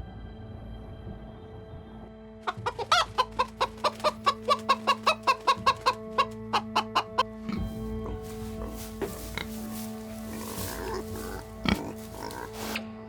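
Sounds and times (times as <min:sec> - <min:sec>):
chicken clucking: 0:02.5 - 0:12.8.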